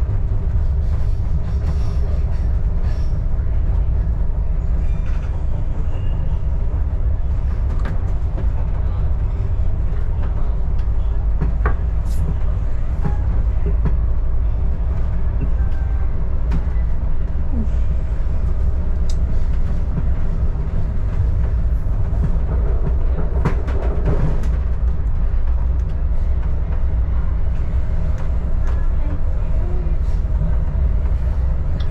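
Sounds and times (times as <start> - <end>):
railcar rumbling: 0.0 - 31.9.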